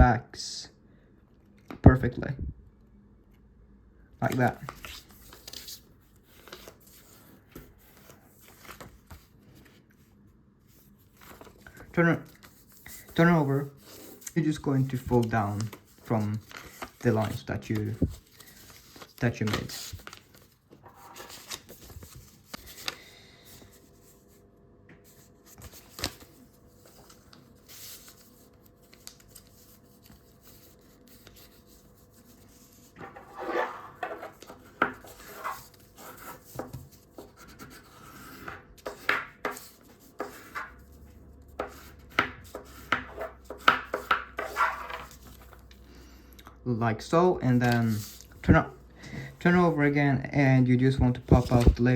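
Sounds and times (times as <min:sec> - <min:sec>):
paper handling: 0:04.2 - 0:10.0, 0:10.7 - 0:24.4, 0:25.0 - 0:45.9, 0:47.5 - 0:49.7, 0:51.0 - 0:51.9
paper creasing strokes: 0:10.7 - 0:24.4, 0:25.1 - 0:45.6.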